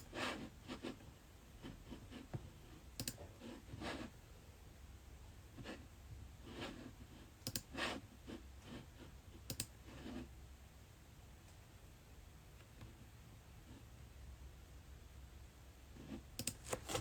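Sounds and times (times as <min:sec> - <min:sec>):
soft rustling: 0:16.6 - 0:17.0.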